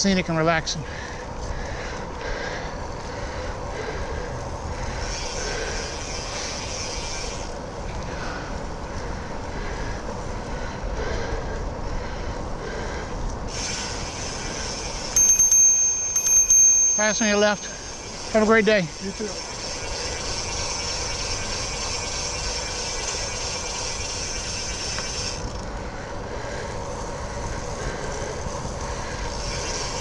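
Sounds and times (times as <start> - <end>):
bicycle tyres on wet trail: 0.0 - 16.2, 16.8 - 30.0
wind rumble on microphone: 25.3 - 30.0.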